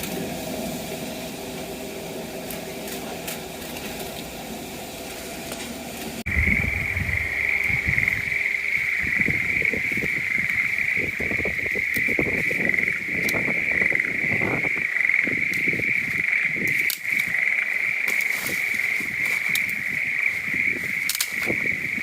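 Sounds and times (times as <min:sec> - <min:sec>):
frogs trilling: 0:06.3 - 0:22.0
rustling close by: 0:15.9 - 0:21.7.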